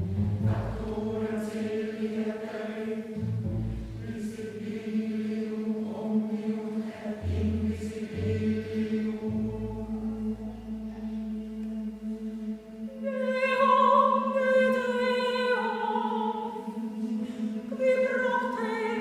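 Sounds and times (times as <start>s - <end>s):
chamber orchestra: 0.0s - 19.0s
mixed choir singing: 0.0s - 19.0s.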